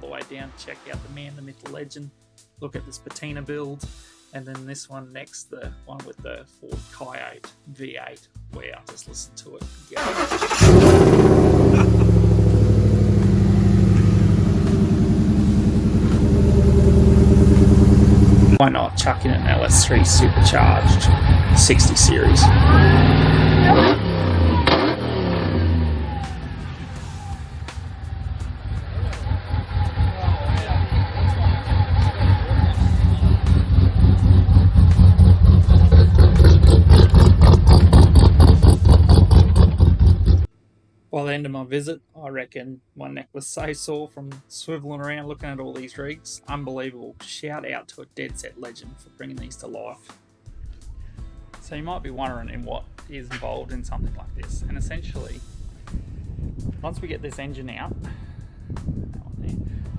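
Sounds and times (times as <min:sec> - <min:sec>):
car engine idling: 0:10.0 - 0:40.5.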